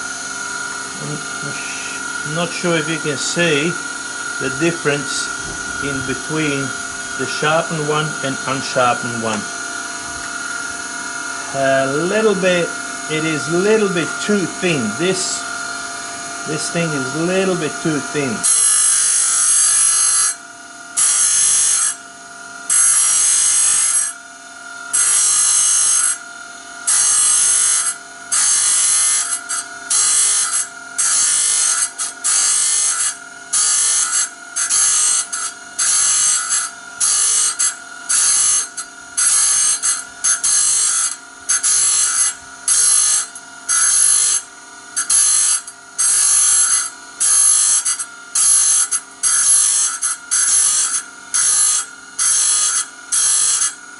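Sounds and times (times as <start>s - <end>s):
power grinder sharpening saw blade: 0.0s - 53.9s.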